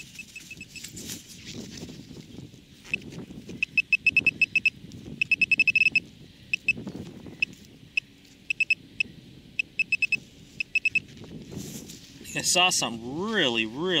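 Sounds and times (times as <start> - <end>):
pinpointer probe beeping: 0.0 - 0.8, 3.6 - 6.8, 7.4 - 11.1
soil rustling: 0.0 - 3.6, 10.1 - 14.0.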